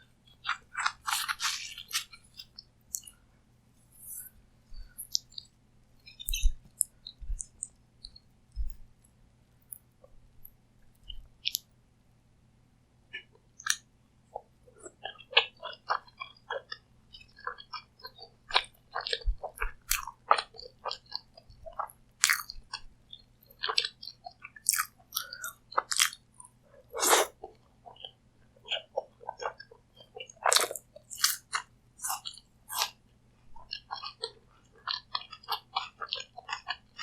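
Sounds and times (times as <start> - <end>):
crunchy chewing: 0.3 - 3.2, 3.9 - 8.9, 14.4 - 33.0, 33.6 - 37.0
mouth clicks: 6.1 - 8.8.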